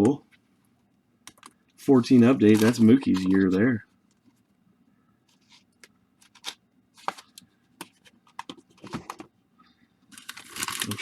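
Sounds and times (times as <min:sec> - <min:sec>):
wrappers crinkling: 0:02.1 - 0:03.5, 0:10.1 - 0:11.0.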